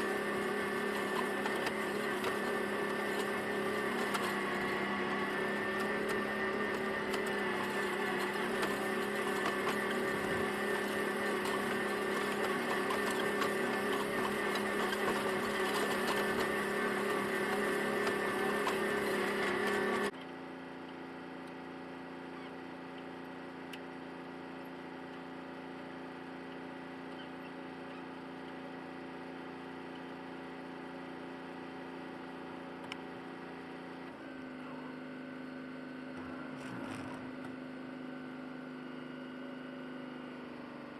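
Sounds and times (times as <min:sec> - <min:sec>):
tractor engine running: 0:00.0 - 0:20.2.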